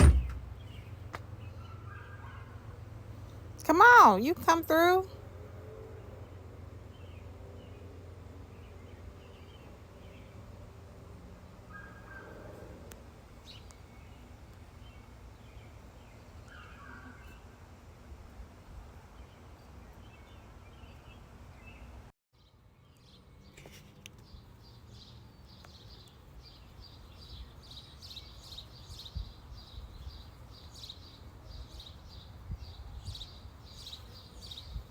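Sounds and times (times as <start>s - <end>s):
birds chirping: 0.0s - 5.2s, 19.2s - 34.9s.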